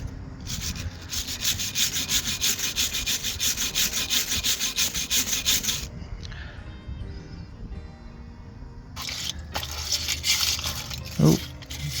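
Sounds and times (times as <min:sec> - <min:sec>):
hand scrubbing: 0:00.5 - 0:05.9, 0:09.0 - 0:12.0.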